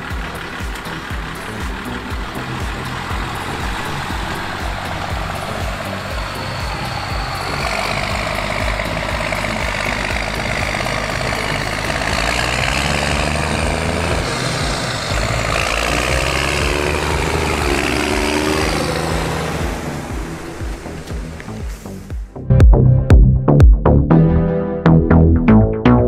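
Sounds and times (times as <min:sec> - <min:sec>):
tractor engine running: 0:00.0 - 0:23.8.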